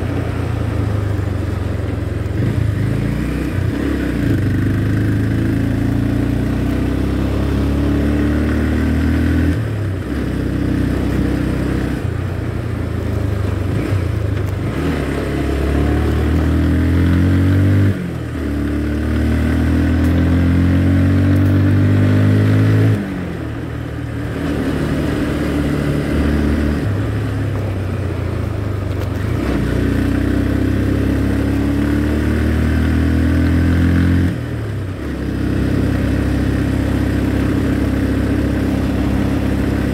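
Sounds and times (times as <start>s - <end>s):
motorcycle engine changing gears: 13.0s - 39.9s.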